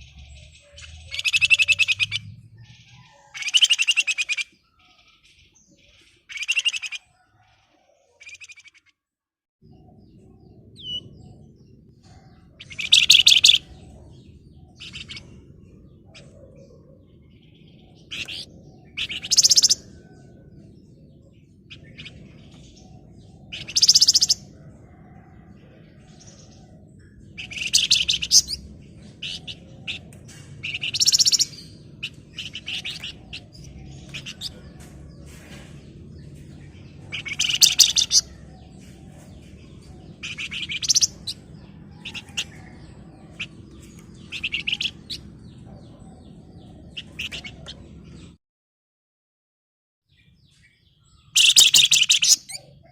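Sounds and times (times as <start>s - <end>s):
songbird rattling trills: 12.6s - 13.7s, 37.0s - 38.4s, 51.4s - 52.5s.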